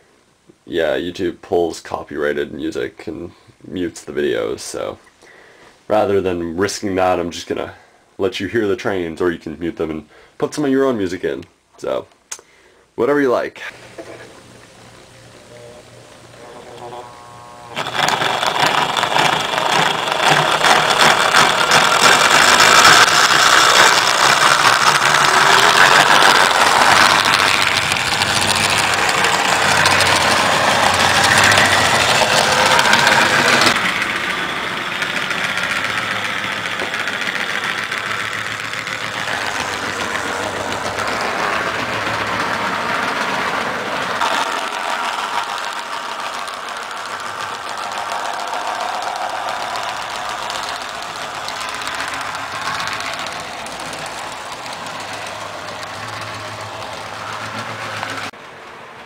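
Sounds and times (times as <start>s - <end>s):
model train motor whirring: 13.8s - 58.3s.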